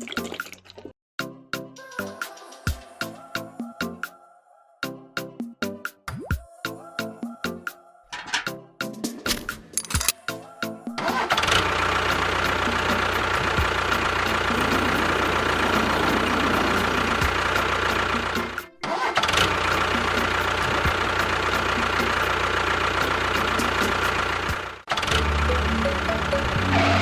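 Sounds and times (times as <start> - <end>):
motor running: 11.5 - 27.0.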